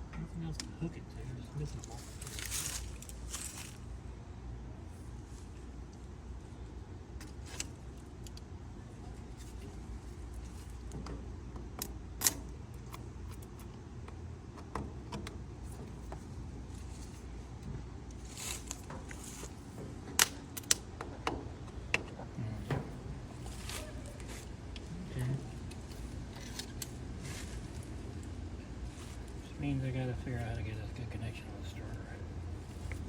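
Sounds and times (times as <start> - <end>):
metallic clicks of tools and wiring: 20.1 - 22.1.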